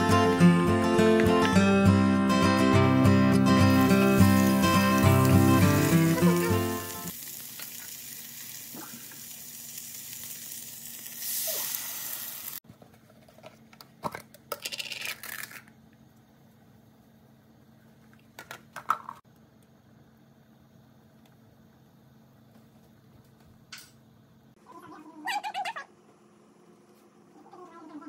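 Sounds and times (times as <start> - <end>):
food sizzling in a frying pan: 3.6 - 12.6.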